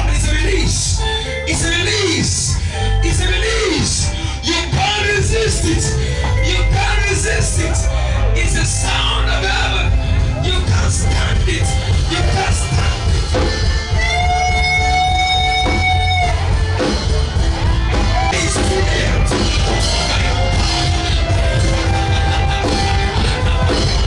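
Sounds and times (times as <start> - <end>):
worship band music: 0.0 - 24.0.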